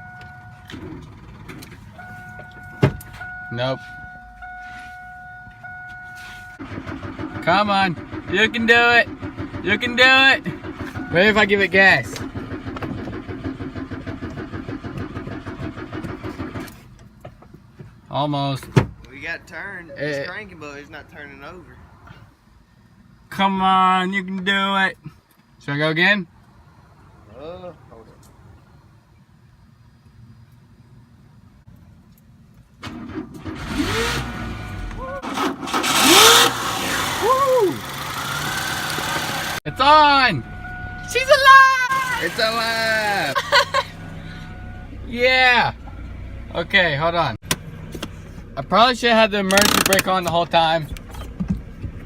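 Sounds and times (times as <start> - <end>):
starter cranking engine: 6.6 - 16.9, 32.8 - 39.6, 49.5 - 50.4.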